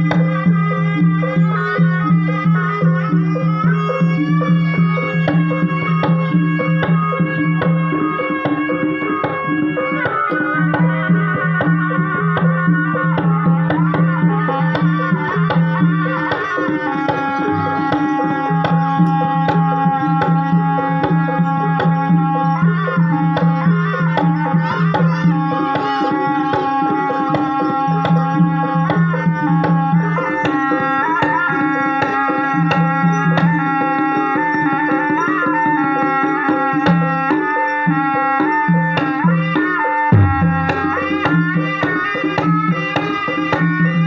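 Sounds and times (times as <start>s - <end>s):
rapid hand-drum strokes: 0.0s - 44.0s
pitch-bending melody: 40.1s - 42.8s.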